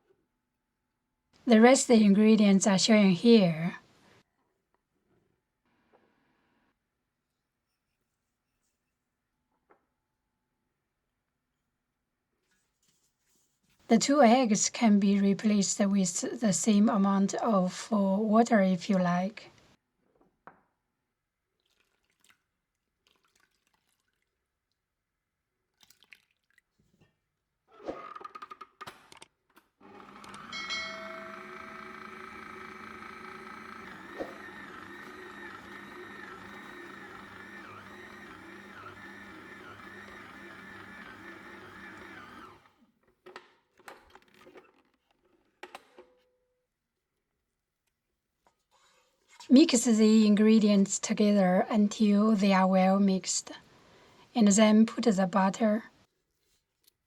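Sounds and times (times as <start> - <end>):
liquid dripping and squishing: 21.5 - 25.0, 25.6 - 27.2
electric mixer motor whining: 29.8 - 42.8.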